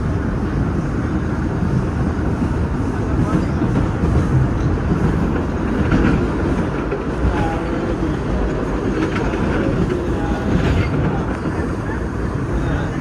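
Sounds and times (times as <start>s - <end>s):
train wheels rumbling: 0.0s - 13.0s
faint clicks from rails: 1.8s - 12.0s.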